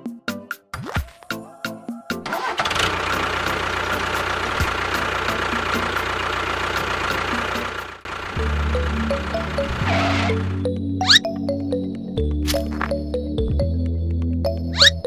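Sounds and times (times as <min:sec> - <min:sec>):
engine running: 0:02.4 - 0:11.2.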